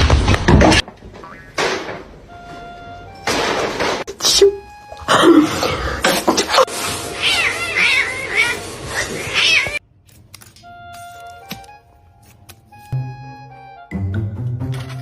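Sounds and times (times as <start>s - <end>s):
cat meowing: 7.1s - 9.8s.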